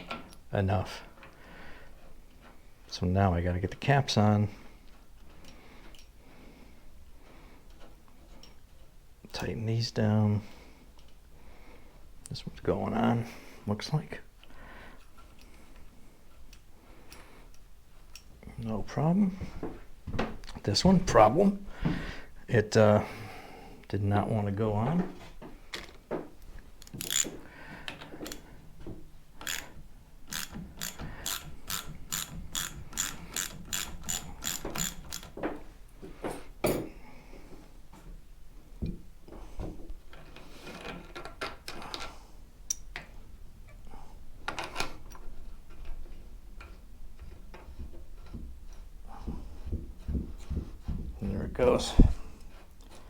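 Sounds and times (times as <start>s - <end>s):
socket ratchet clicking: 26.8s - 27.4s, 28.2s - 28.4s, 29.4s - 35.4s
metal knocks and handling noises: 30.3s - 37.0s.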